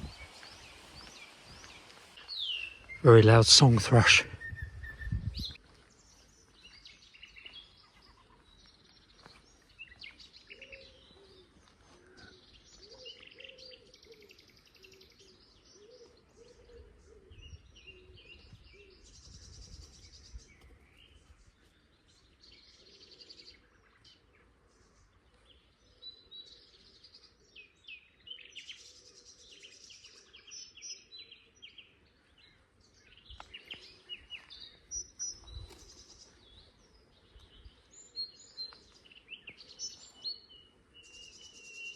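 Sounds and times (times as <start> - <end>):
songbird singing: 0.0 - 41.9.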